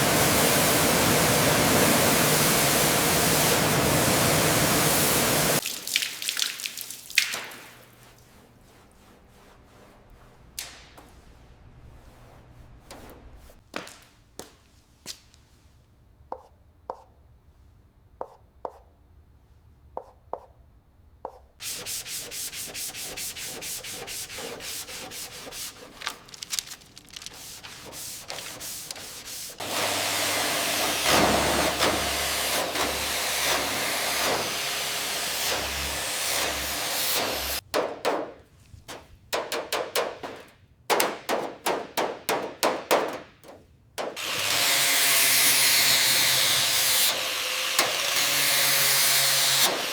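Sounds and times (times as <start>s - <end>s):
sanding and scraping strokes: 7.8s - 13.6s, 21.6s - 37.6s.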